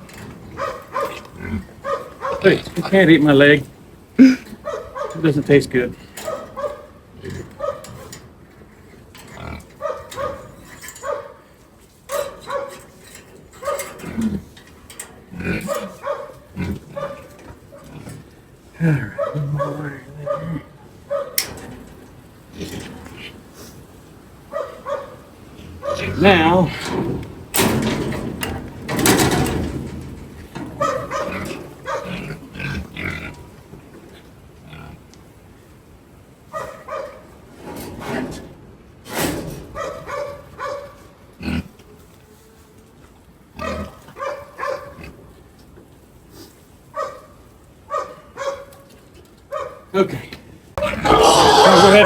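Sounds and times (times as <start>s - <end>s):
pigs grunting: 0.0s - 3.6s, 4.2s - 10.6s, 13.6s - 20.9s, 22.5s - 35.1s, 41.3s - 41.8s, 43.6s - 44.2s, 50.8s - 52.0s.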